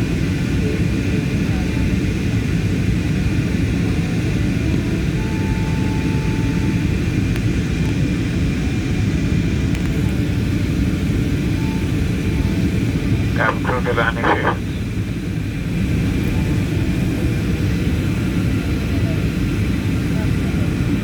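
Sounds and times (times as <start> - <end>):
airliner cabin rumble: 10.0 - 15.0.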